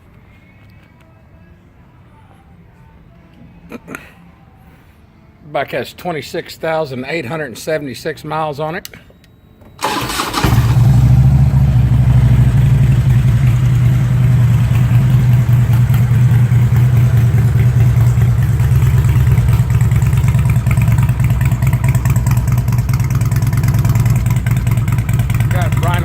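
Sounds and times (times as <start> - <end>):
motorcycle engine idling: 9.8 - 26.0.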